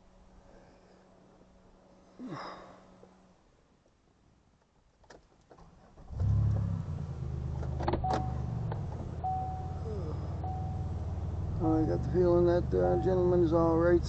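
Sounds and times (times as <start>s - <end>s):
car engine starting and idling: 5.5s - 14.0s
short electronic beeps: 9.3s - 10.9s.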